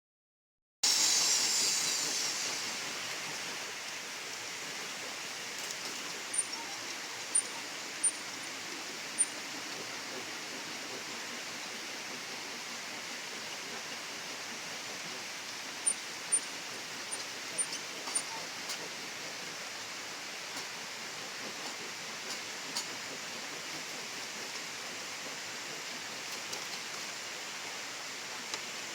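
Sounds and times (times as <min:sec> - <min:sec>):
flowing water rushing: 0:00.9 - 0:28.9
high-pitched ticks: 0:05.7 - 0:06.6, 0:07.2 - 0:08.3.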